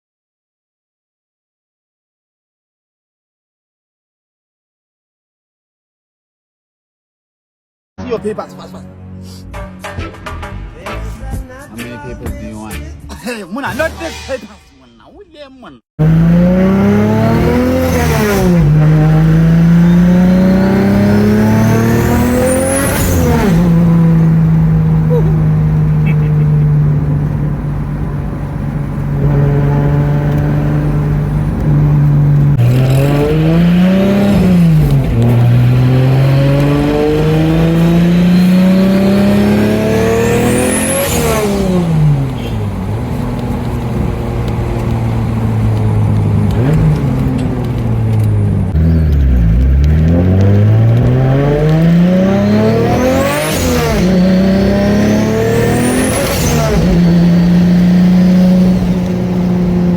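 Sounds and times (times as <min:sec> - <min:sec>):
car engine accelerating through gears: 0:16.0 - 0:59.9.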